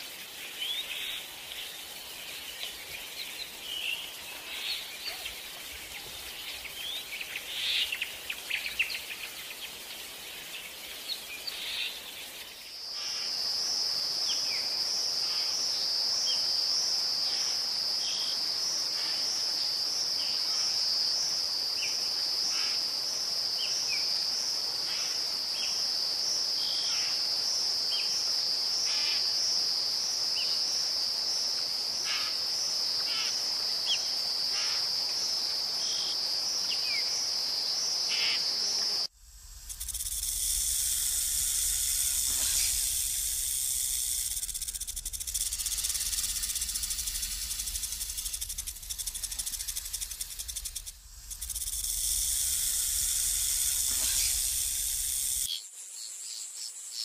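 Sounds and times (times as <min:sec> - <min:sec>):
insect trilling: 0:00.0 - 0:13.4, 0:35.8 - 0:56.4.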